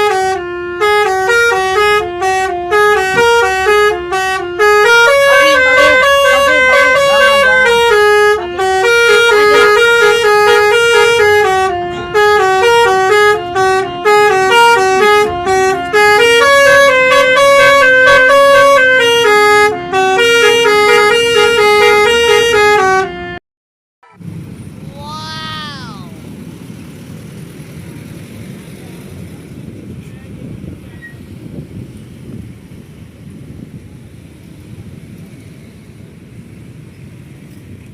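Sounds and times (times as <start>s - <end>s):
musical air horn melody: 0.0s - 23.4s.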